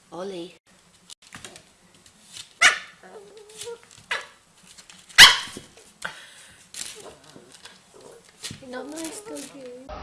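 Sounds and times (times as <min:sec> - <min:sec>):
dog barking: 0:02.6 - 0:03.0, 0:05.2 - 0:05.6.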